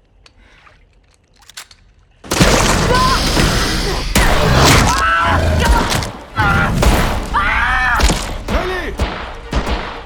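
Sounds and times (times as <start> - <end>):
loud crash: 2.3 - 10.0.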